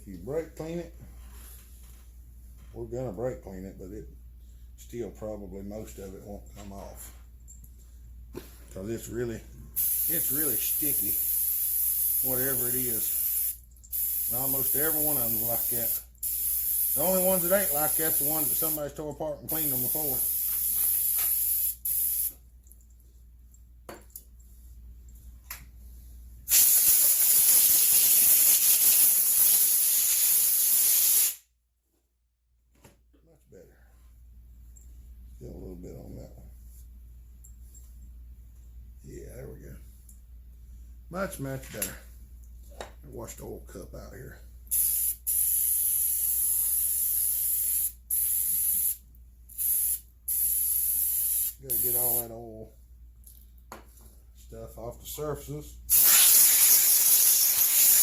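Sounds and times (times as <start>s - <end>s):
aerosol spray hiss: 9.8s - 18.9s, 19.5s - 22.4s, 26.5s - 31.4s, 44.7s - 52.2s, 55.9s - 58.0s.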